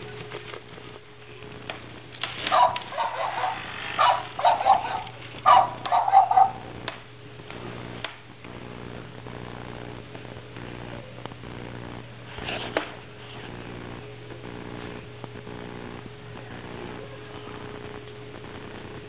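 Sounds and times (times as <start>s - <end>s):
low electrical hum: 0.0s - 19.0s
puppy yipping: 2.5s - 6.6s.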